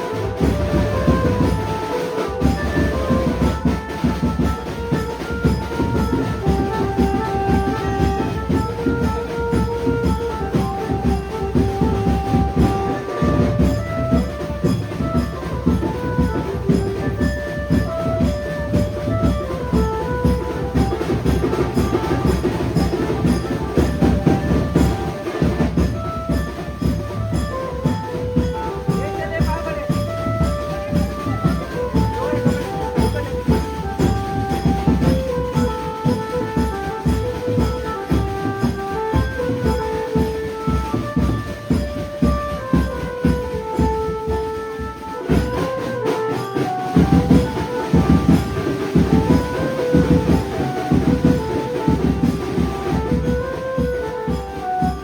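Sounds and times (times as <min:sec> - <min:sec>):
banjo melody: 0:00.0 - 0:05.0, 0:05.7 - 0:44.5
fast dense drumming: 0:00.0 - 0:55.0.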